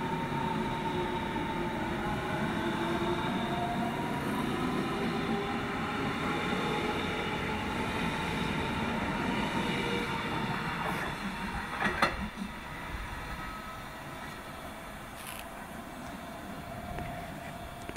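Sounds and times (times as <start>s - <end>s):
electric train whine and rumble: 0.0s - 17.9s.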